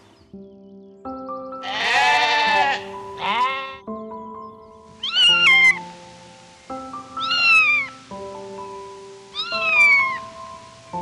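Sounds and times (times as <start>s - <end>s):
background music with held notes: 0.0s - 11.0s
goat bleating: 1.6s - 3.8s
cat meowing: 5.0s - 5.8s, 7.2s - 7.9s, 9.3s - 10.2s.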